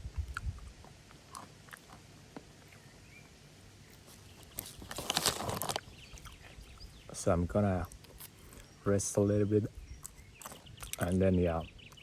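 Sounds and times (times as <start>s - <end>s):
faint outdoor background: 0.0s - 12.0s
rustling noise: 3.9s - 6.7s.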